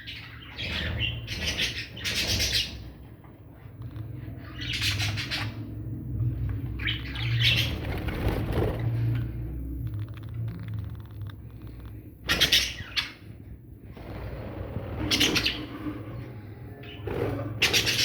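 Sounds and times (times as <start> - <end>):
bird chicks calling raspily: 0.0 - 3.1, 3.8 - 6.0, 11.4 - 13.4.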